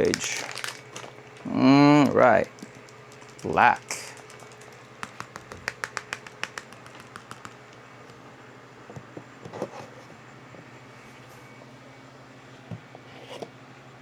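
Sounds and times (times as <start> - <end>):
low steady hum: 0.0 - 14.0
plastic clicks and taps: 4.1 - 8.2.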